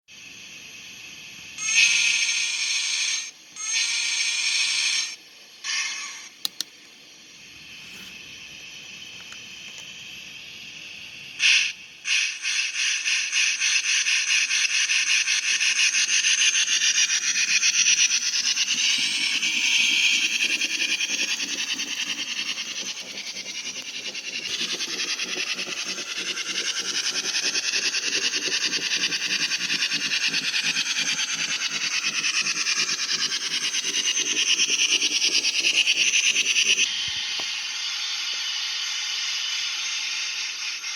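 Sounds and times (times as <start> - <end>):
steam hissing: 6.5 - 40.9
locomotive chuffing: 14.7 - 36.9.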